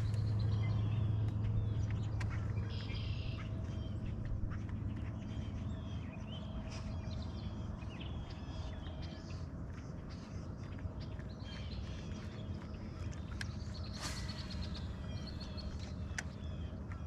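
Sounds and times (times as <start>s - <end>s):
birds chirping: 0.0s - 17.0s
low steady hum: 0.0s - 17.0s.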